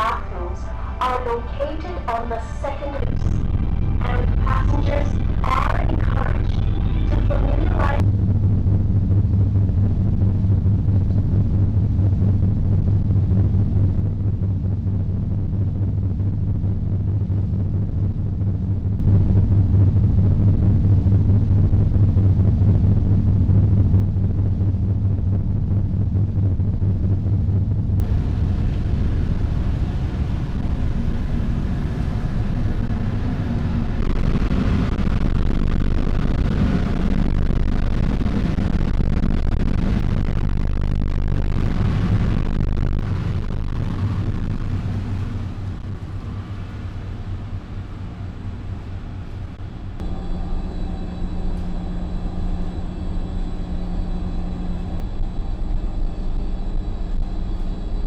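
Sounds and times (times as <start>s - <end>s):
ship engines droning: 0.0s - 8.5s, 27.9s - 58.0s
hum with fixed tones: 0.0s - 58.0s
rushing noise: 28.0s - 58.0s.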